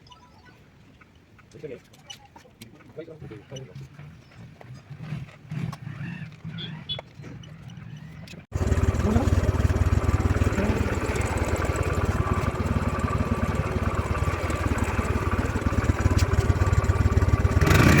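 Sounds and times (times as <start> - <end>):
motorcycle engine running: 8.5 - 18.0.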